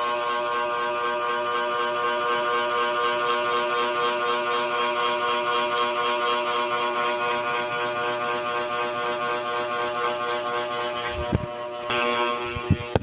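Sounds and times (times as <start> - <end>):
ceiling fan motor humming: 0.0 - 13.0.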